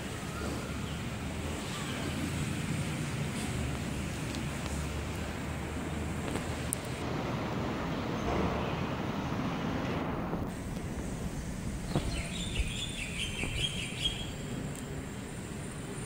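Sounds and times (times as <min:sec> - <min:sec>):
steady background rumble: 0:00.0 - 0:16.0
small bird twittering: 0:11.8 - 0:14.5.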